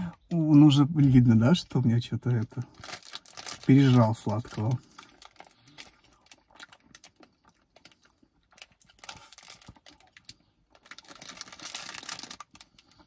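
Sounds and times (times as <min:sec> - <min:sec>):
chewing ice cream cone: 0:04.7 - 0:13.0.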